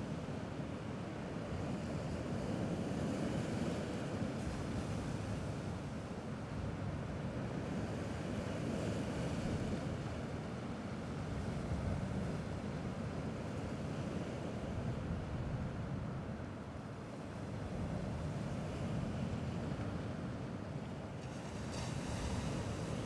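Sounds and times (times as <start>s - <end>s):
gentle sea waves washing: 18.3s - 23.0s.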